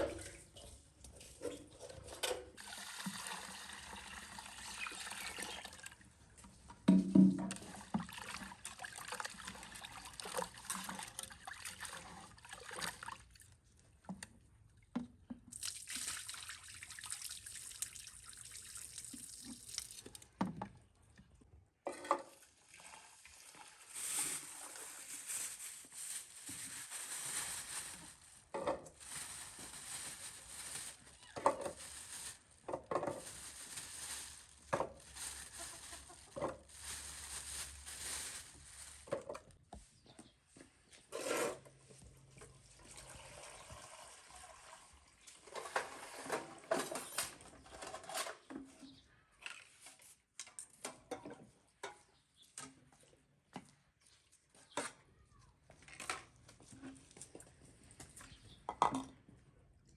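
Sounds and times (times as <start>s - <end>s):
water trickling and splashing: 7.5s - 13.6s, 15.6s - 20.2s, 42.5s - 46.2s.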